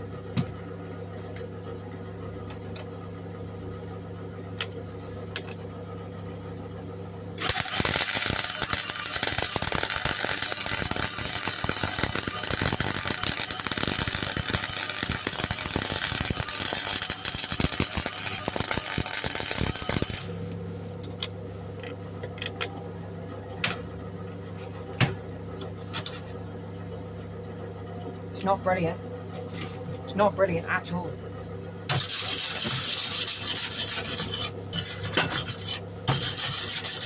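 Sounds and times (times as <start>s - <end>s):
low hum: 0.0s - 36.0s
welding arc crackling: 7.4s - 20.6s, 31.9s - 37.0s.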